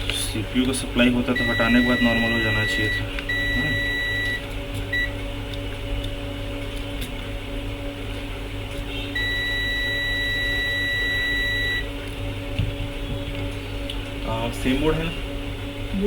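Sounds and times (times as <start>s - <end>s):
low electrical hum: 0.0s - 16.0s
multimeter continuity beep: 1.2s - 5.2s, 9.2s - 11.9s.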